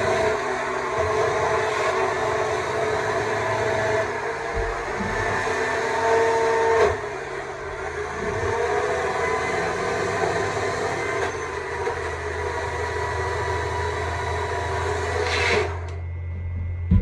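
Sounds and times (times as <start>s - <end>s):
low hum: 13.2s - 17.0s.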